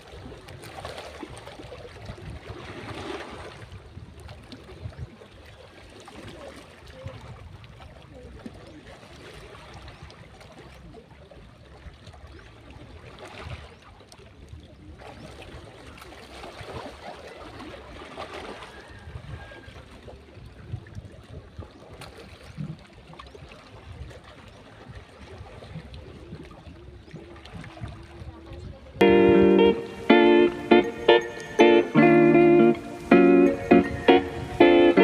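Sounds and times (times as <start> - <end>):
shallow water washing at shore: 0.0 - 35.0.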